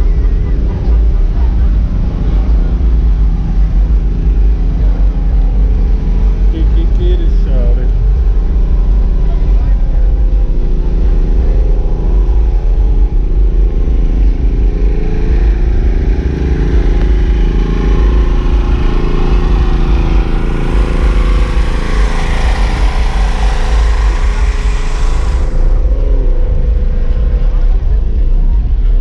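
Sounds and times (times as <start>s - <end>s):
vehicle engine running: 0.0s - 29.0s
hissing noise: 17.6s - 27.2s.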